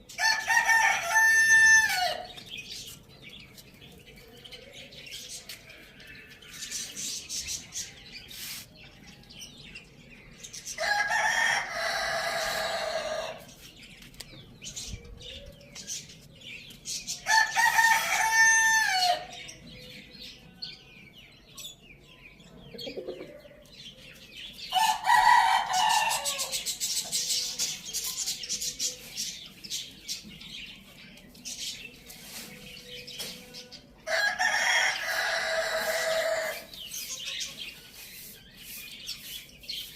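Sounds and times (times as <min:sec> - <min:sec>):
small birds chirping: 0:00.0 - 0:39.9
roosters crowing: 0:00.1 - 0:02.4, 0:10.7 - 0:13.6, 0:17.1 - 0:19.5, 0:24.7 - 0:26.8, 0:33.8 - 0:37.0.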